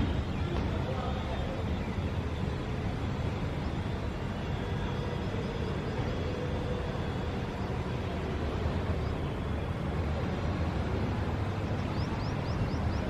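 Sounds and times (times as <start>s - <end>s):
city traffic rumble: 0.0s - 13.0s
faint bird chirps: 11.7s - 13.0s.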